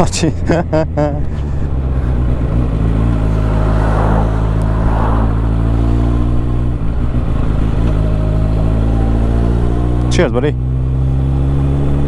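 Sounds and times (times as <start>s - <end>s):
motorcycle engine running: 0.0s - 12.0s
rush of noise: 2.9s - 7.4s.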